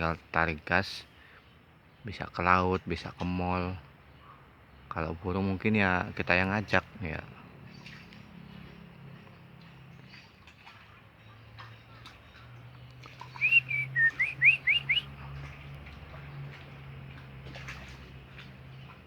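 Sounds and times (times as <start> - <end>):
bird whistling: 13.2 - 15.1.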